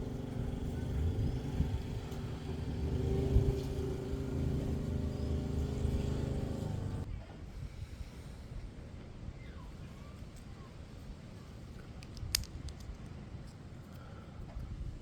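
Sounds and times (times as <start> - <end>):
engine knock: 0.0 - 7.0
engine running: 0.0 - 7.1.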